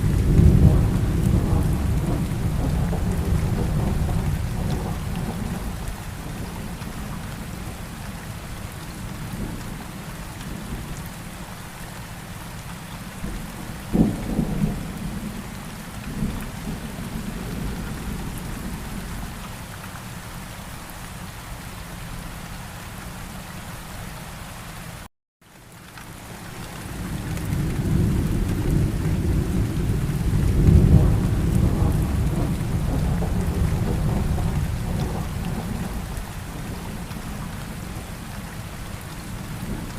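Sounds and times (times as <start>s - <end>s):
thunder rumbling: 0.0s - 7.8s, 13.2s - 19.4s, 27.0s - 38.4s
steady rain: 0.0s - 39.9s.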